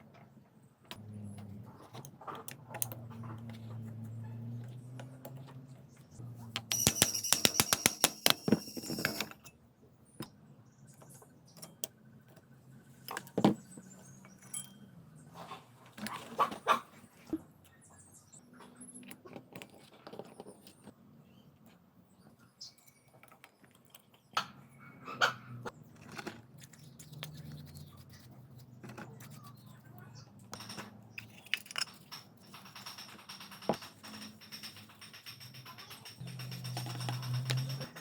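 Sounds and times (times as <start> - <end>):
metal knocks and taps: 6.6 - 9.3
metallic clicks of tools: 6.6 - 9.5, 30.5 - 38.0.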